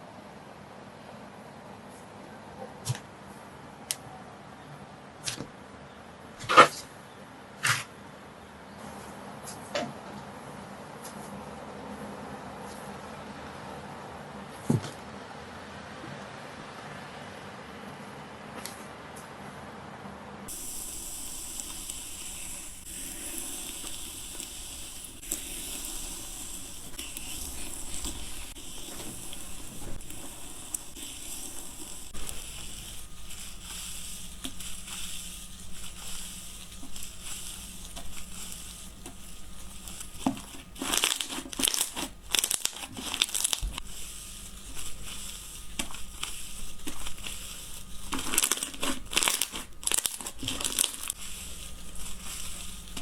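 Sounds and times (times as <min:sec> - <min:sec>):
slime crackling when squeezed: 0:40.2 - 0:43.8, 0:48.1 - 0:51.2.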